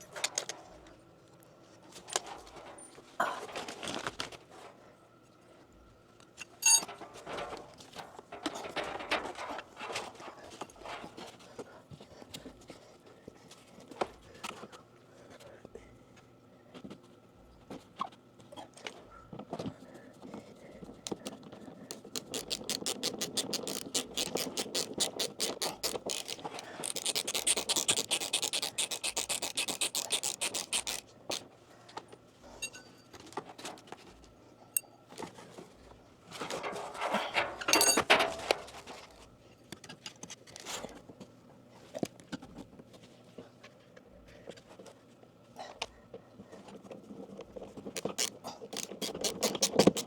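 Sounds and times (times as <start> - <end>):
rapid scratchy clicks of hand tool: 21.0 - 31.5, 47.8 - 50.0.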